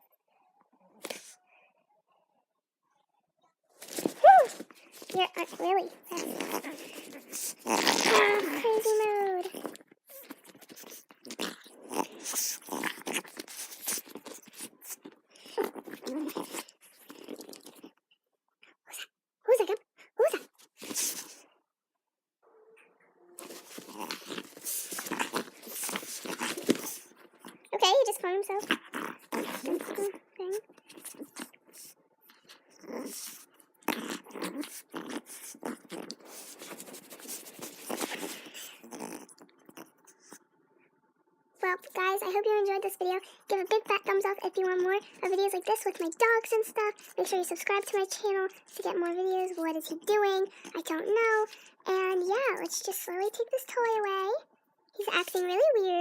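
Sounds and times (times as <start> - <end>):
dog crunching and biting toy: 3.8 - 17.9, 20.2 - 21.4, 23.4 - 40.4.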